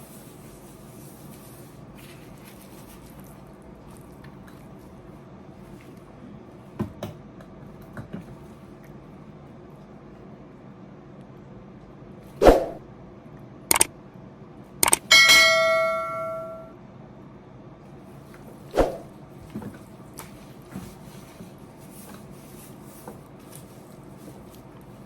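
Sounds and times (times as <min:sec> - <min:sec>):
metal kitchenware clinking: 0:14.9 - 0:16.7
ringing metal tone: 0:15.1 - 0:16.8.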